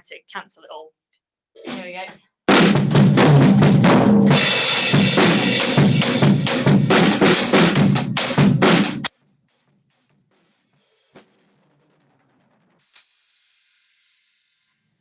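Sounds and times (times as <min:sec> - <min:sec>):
drum kit playing a steady beat: 0:01.6 - 0:09.1.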